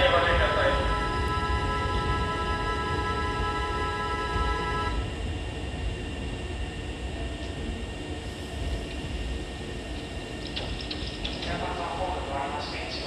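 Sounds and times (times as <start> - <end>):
platform chord of tones: 0.0 - 5.1
electric train rumbling: 0.0 - 13.0.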